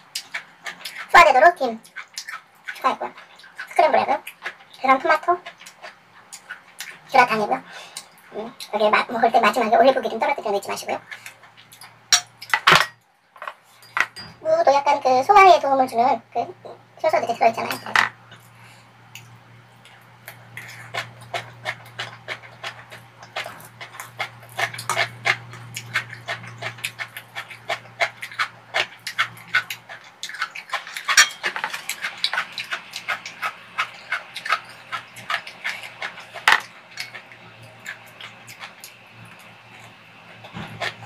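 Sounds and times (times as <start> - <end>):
wet chewing: 0.0 - 12.6, 18.3 - 41.0
lip smacks and mouth clicks: 1.8 - 4.8, 5.4 - 7.0, 19.1 - 41.0
metal spoon scraping a pan: 30.4 - 37.3.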